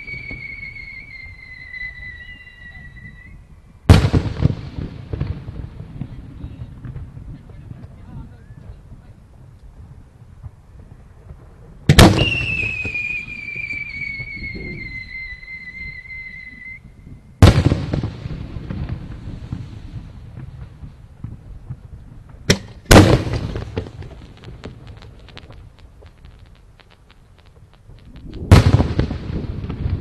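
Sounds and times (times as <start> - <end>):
firework crackling: 0.0 - 3.3, 3.9 - 16.8, 17.4 - 30.0
whistling tone sliding downward: 0.0 - 3.4, 12.2 - 16.9
firework shells booming: 3.9 - 5.8, 11.2 - 14.4, 17.4 - 30.0
sharp crack: 11.9 - 13.1, 22.3 - 30.0.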